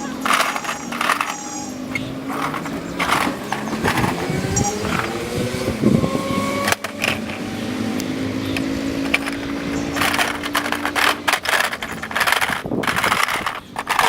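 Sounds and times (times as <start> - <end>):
toy trucks scraping and clattering: 0.0 - 14.0.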